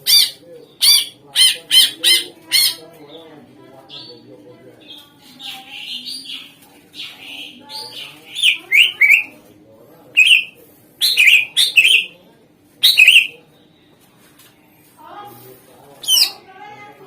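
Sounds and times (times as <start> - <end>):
bird chirping: 0.0 - 2.8, 3.9 - 9.4, 10.2 - 12.2, 12.8 - 13.4.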